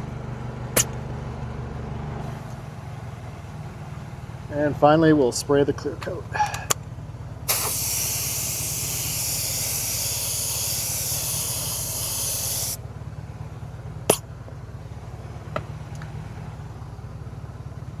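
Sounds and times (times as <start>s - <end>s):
sharp click: 0.8s - 1.0s
spray hissing: 7.5s - 12.8s.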